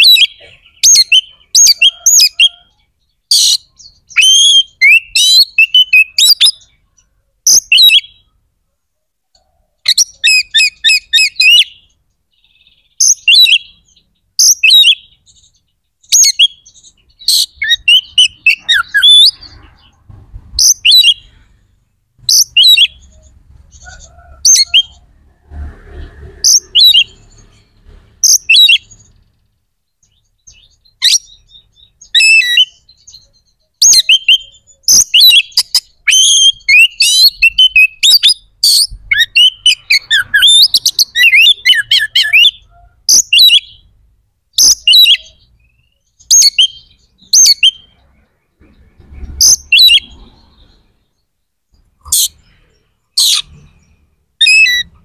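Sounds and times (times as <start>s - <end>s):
bird singing whistled trills: 0.0s - 6.8s, 7.5s - 8.3s, 9.8s - 19.5s, 20.6s - 21.3s, 22.3s - 23.3s, 28.2s - 29.0s, 30.0s - 43.9s, 44.6s - 47.9s, 54.4s - 55.0s.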